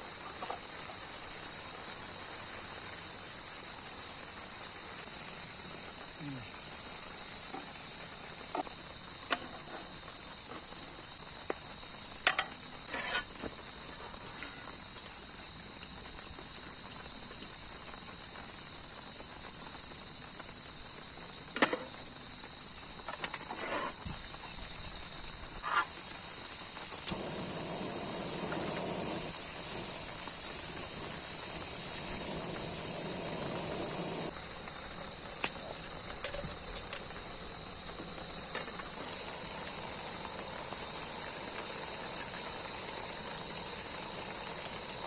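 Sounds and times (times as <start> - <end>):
night insects chirping: 0.0 - 45.0
camp gear clicks and knocks: 35.4 - 37.1.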